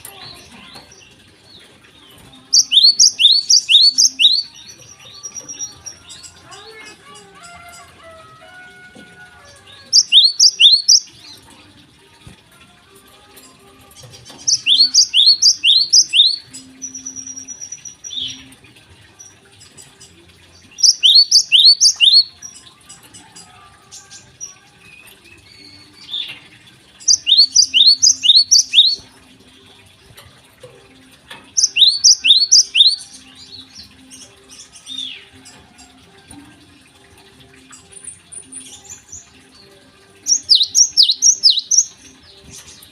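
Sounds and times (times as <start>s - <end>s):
sparrow singing sharp high notes: 2.6s - 4.6s, 14.5s - 16.4s, 27.1s - 29.0s, 40.3s - 41.9s.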